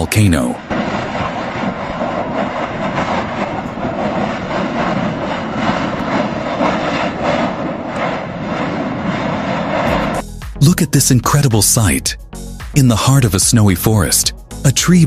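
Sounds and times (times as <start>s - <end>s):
volcano roaring: 0.0s - 10.2s.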